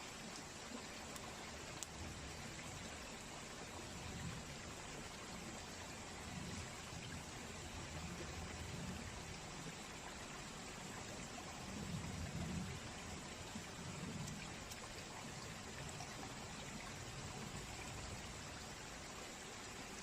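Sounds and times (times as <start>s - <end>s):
faint ticks: 0.3s - 2.9s, 11.7s - 18.8s
campfire crackling: 0.4s - 3.0s.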